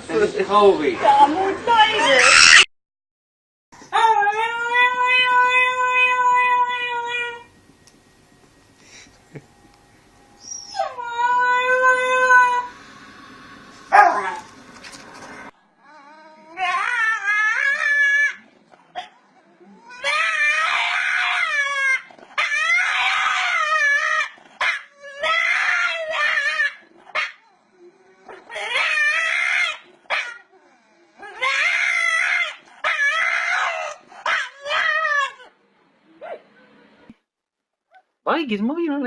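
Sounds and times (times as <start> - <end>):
dog yelping: 2.0 - 2.7, 13.9 - 14.4, 19.8 - 27.6, 28.3 - 30.5, 31.2 - 35.5
dog howling: 3.9 - 7.5, 10.4 - 12.8, 13.9 - 14.5, 15.8 - 18.5, 19.5 - 35.5.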